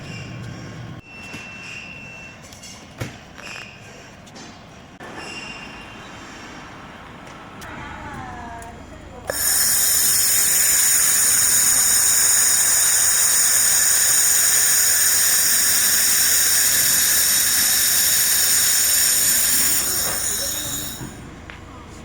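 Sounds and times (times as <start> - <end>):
laser machine hissing and whining: 9.3 - 21.2.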